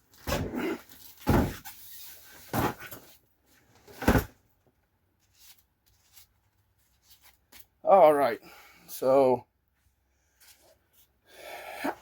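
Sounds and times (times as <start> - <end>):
soft rustle: 5.2 - 7.8.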